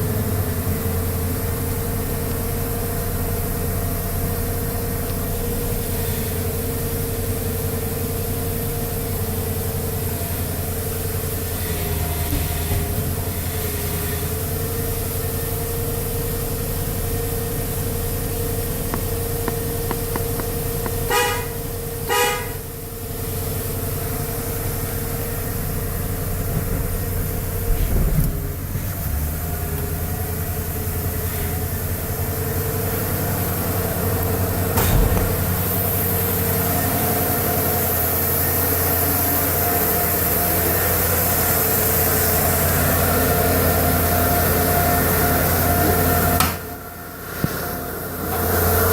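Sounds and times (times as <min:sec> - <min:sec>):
truck engine idling: 0:00.0 - 0:48.9
brief thumps: 0:18.9 - 0:21.5
car horn toots: 0:19.0 - 0:22.7.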